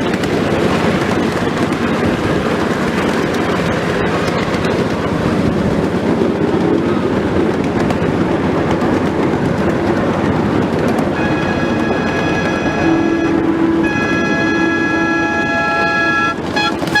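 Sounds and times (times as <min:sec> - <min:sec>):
train wheels rumbling on track: 0:00.0 - 0:17.0
high-pitched train signal: 0:10.9 - 0:17.0.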